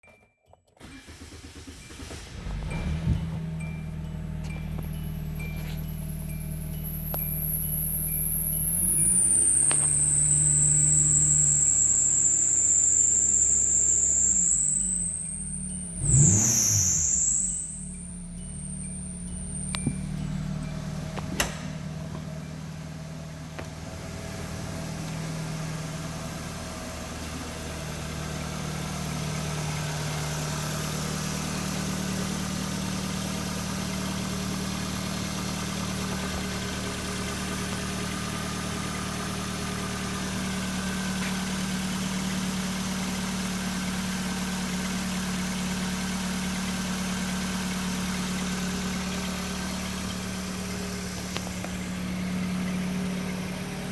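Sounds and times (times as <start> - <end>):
car engine idling: 0.8 - 53.9
sharp click: 21.2 - 21.8.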